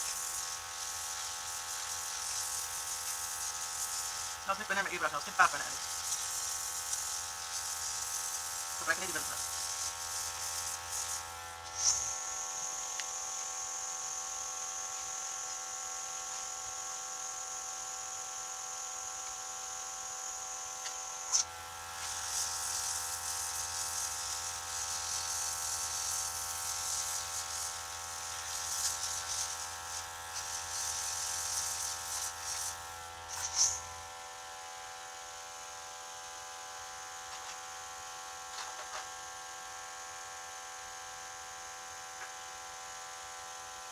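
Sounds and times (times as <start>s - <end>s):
airbrush spray hissing: 8.0s - 12.2s, 22.0s - 33.8s.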